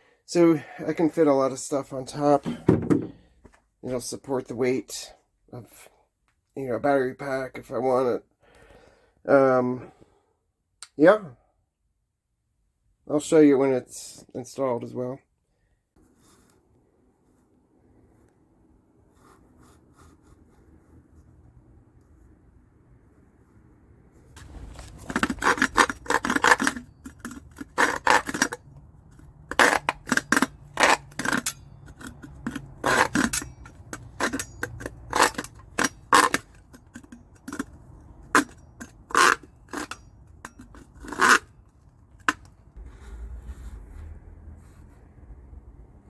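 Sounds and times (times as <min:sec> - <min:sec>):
short scrapes and knocks: 0:24.3 - 0:45.3
faint low rumble: 0:42.7 - 0:46.0.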